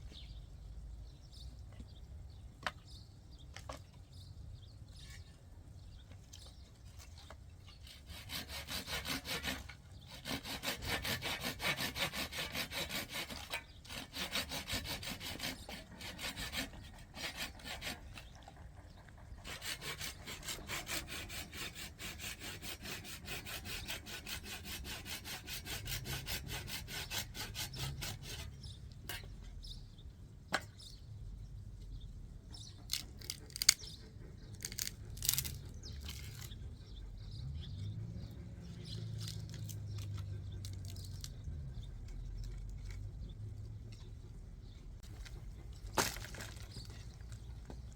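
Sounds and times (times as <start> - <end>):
rhythmic rasping strokes: 8.1 - 28.5.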